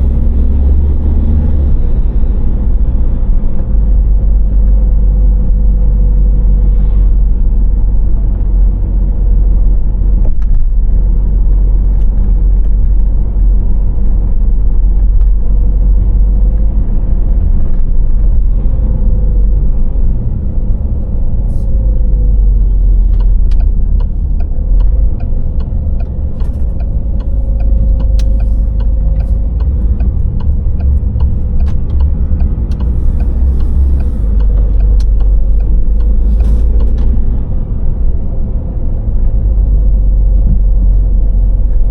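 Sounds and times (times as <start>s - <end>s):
tyre and engine rumble: 0.0s - 41.9s
light ticks: 23.0s - 37.1s.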